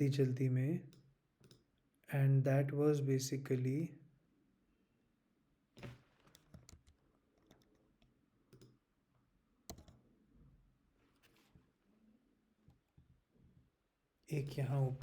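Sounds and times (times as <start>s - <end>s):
faint clicks and taps: 0.9s - 1.9s, 5.8s - 11.7s.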